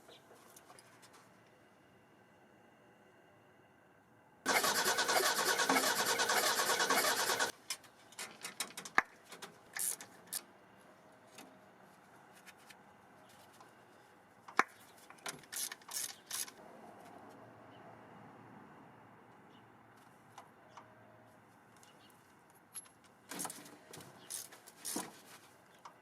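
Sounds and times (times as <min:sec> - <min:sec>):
engine cranking on starter: 0:04.5 - 0:07.5.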